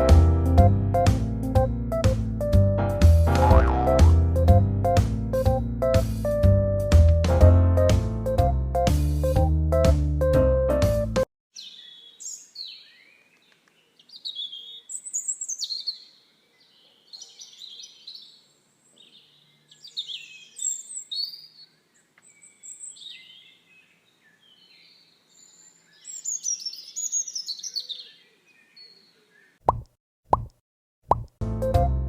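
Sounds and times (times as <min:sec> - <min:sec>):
birds chirping and twittering: 0:11.6 - 0:29.6.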